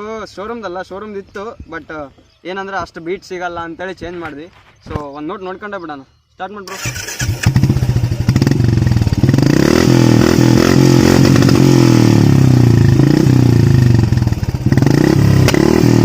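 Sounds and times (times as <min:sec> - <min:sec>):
motorcycle engine running loudly: 0:07.2 - 0:16.0.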